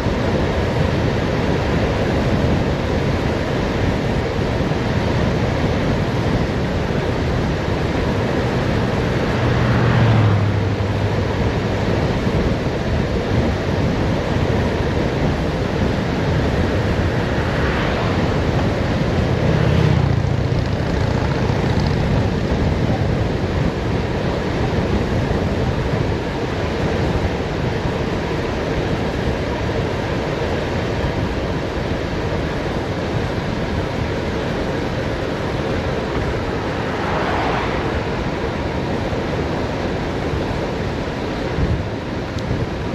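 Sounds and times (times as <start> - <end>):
wind rushing over microphone: 0.0 - 42.9
low rumble: 8.0 - 12.5, 15.9 - 23.2, 35.8 - 39.7.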